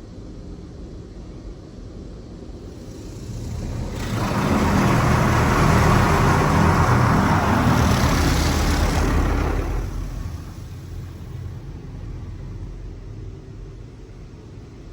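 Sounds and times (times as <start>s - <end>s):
car wash spraying water: 2.7s - 13.4s.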